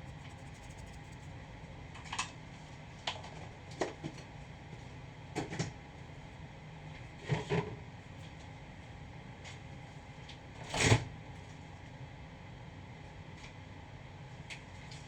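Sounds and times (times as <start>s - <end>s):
steady low hum: 0.0s - 1.9s.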